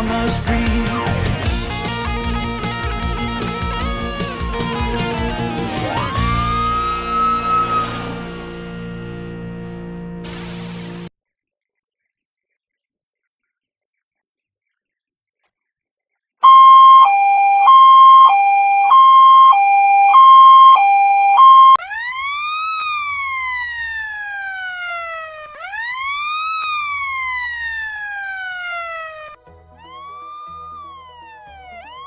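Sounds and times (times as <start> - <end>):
wailing siren: 1.6 - 10.2, 16.4 - 32.0
two-tone hi-lo siren: 1.6 - 11.1, 16.4 - 32.0.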